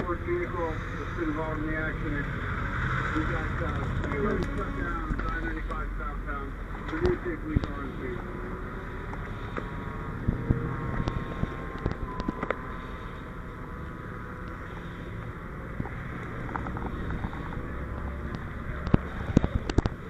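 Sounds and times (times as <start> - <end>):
vehicle engine rumble: 0.0 - 20.0
wind noise on microphone: 8.5 - 13.4, 15.4 - 20.0.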